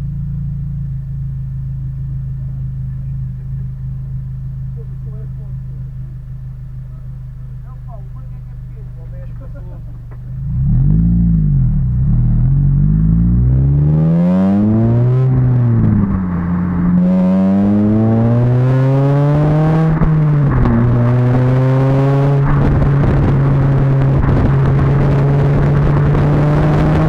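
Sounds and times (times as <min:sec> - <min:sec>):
car engine revving and accelerating: 0:08.2 - 0:27.0.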